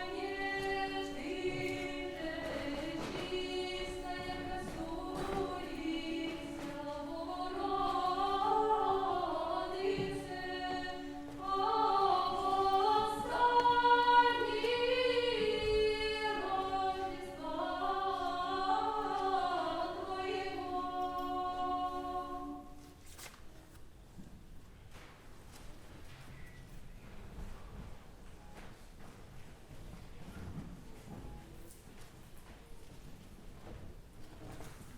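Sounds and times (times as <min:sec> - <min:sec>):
choir singing a cappella: 0:00.0 - 0:23.0.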